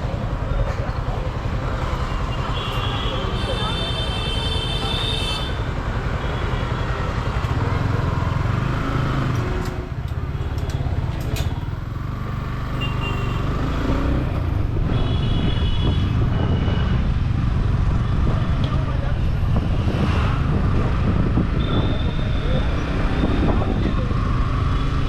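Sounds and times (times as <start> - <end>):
road and traffic noise: 0.0 - 25.0
vehicle horn: 12.8 - 13.5, 14.8 - 17.0.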